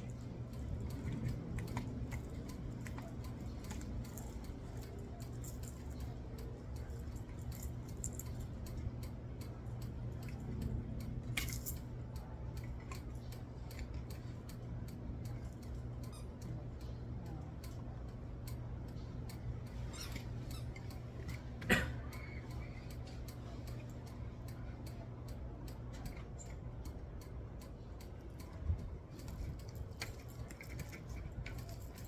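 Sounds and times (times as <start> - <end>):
metal parts clicking and rattling: 0.0 - 24.2, 25.7 - 32.0
steady low hum: 0.0 - 32.0.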